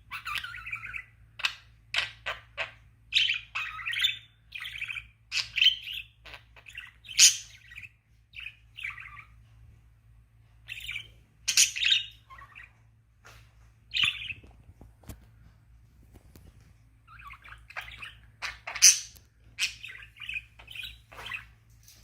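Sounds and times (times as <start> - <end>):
budgerigar chirping: 0.0 - 9.4, 10.7 - 12.8, 17.1 - 21.5.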